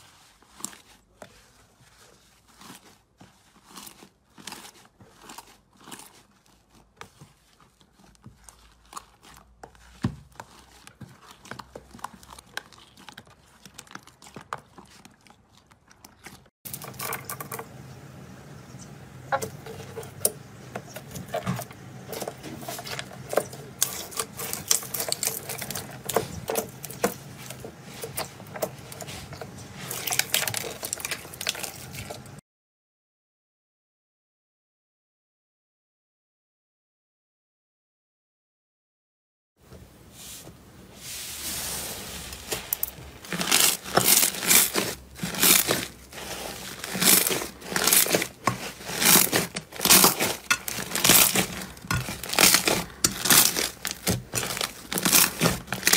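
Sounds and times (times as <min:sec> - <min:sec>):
low hum: 0:16.7 - 0:30.0.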